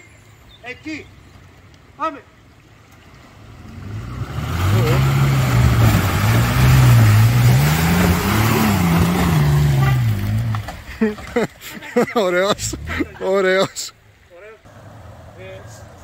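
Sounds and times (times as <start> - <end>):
off-road vehicle engine revving: 3.4 - 11.2, 12.4 - 13.4.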